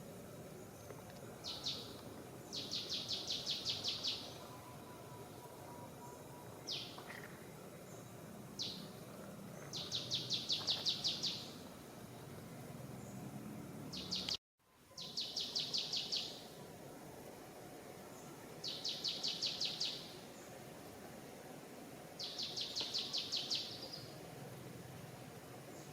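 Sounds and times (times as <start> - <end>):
forest background hum: 0.0 - 25.9.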